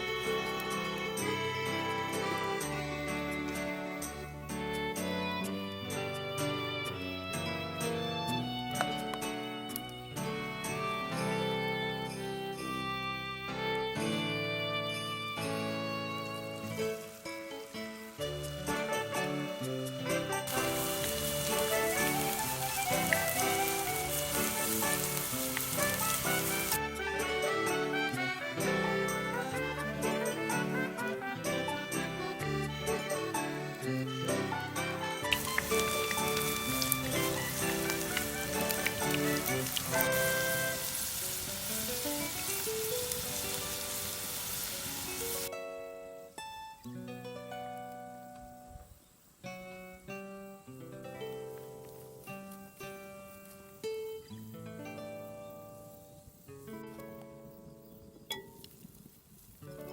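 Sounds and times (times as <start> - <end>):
background music: 0.0 - 48.7
food sizzling in hot oil: 16.3 - 19.4, 20.0 - 26.8, 34.8 - 45.5.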